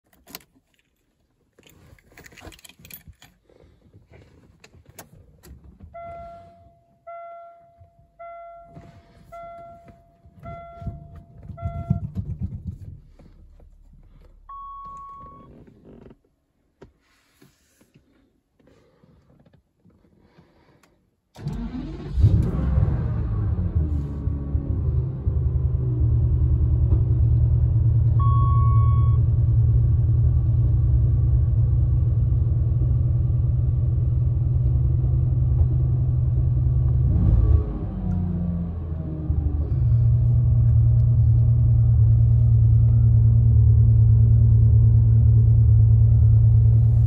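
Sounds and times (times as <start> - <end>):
keys jangling in ignition: 0.0 - 3.4
warning chime beeping: 6.0 - 12.1
car engine cranking and starting: 7.8 - 16.4, 21.3 - 28.8, 29.5 - 47.0.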